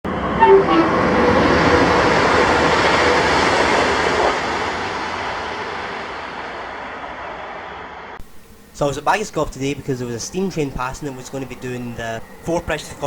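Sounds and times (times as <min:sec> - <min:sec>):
train passing at speed: 0:00.1 - 0:08.2.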